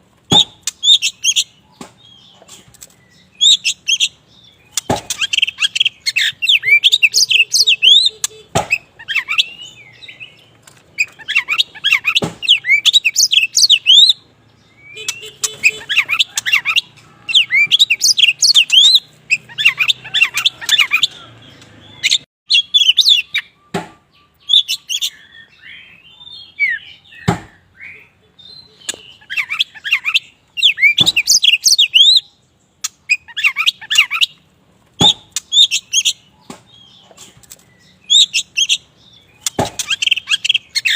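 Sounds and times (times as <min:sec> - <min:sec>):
sharp knocks: 0:00.2 - 0:00.8, 0:04.8 - 0:05.3, 0:08.5 - 0:08.8, 0:12.2 - 0:12.6, 0:23.7 - 0:24.0, 0:27.2 - 0:27.6, 0:35.0 - 0:35.4, 0:39.4 - 0:40.0
bird singing chirps and whistles: 0:00.3 - 0:34.4, 0:35.0 - 0:40.9.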